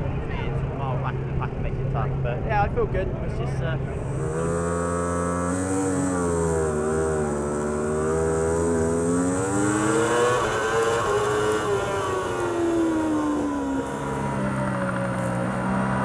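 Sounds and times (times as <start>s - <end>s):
racing motorcycle engine revving: 3.8s - 16.0s.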